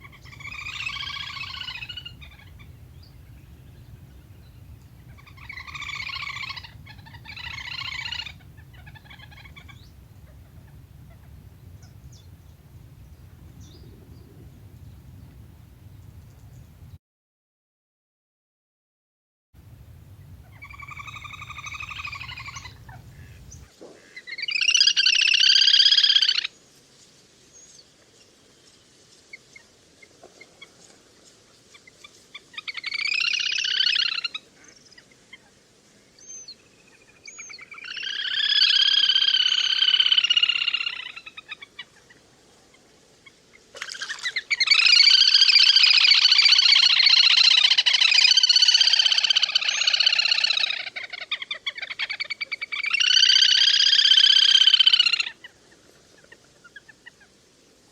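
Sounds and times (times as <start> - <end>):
ducks whistling calls: 0.0 - 17.0, 19.7 - 26.5, 32.6 - 34.7, 37.4 - 41.9, 43.8 - 57.3.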